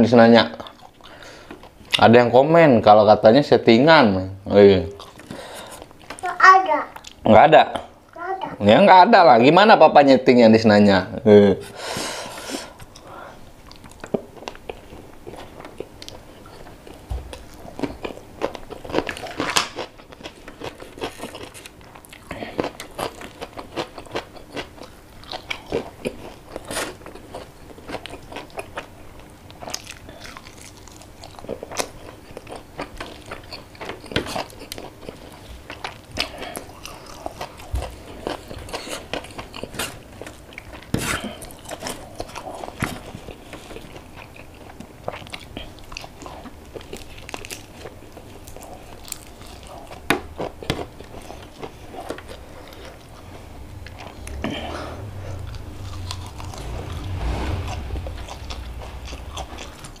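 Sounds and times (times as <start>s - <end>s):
person chewing crispy food: 0.6s - 2.0s, 5.0s - 6.2s, 12.4s - 60.0s.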